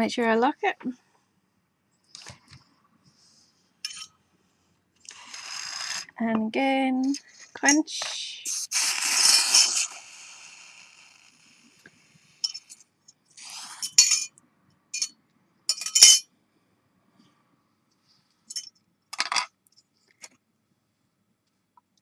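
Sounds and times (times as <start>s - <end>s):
metal tools clinking and scraping: 3.8s - 4.2s, 13.8s - 14.3s, 15.7s - 16.2s, 18.5s - 19.5s
faint hiss: 7.0s - 14.3s.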